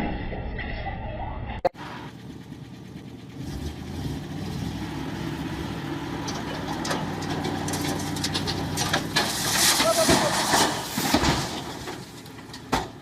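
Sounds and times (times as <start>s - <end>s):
vehicle engine running: 1.8s - 9.2s.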